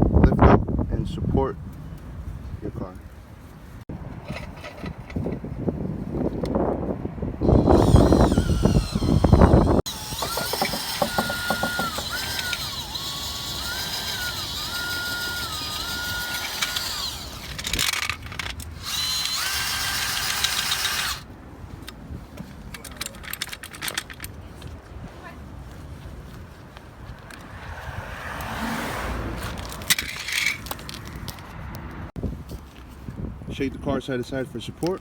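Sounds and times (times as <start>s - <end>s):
power drill motor whining: 7.4s - 21.2s.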